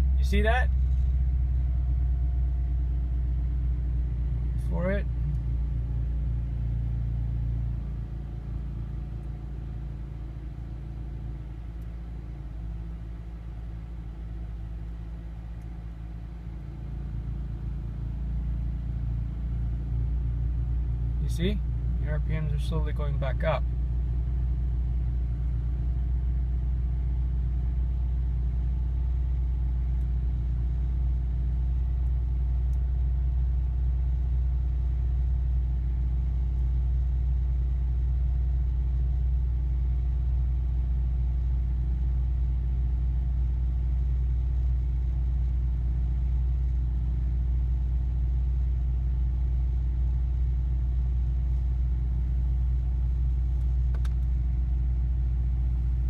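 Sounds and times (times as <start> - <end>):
car engine idling and surging: 0.0 - 56.0
man talking: 0.2 - 0.7, 4.6 - 5.1, 21.2 - 23.6.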